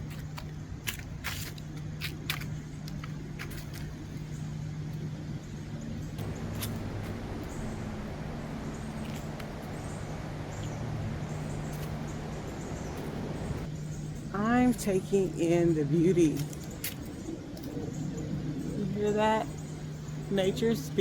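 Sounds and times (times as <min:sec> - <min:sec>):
footsteps on dry leaves: 0:00.0 - 0:05.2
distant road traffic: 0:00.0 - 0:21.0.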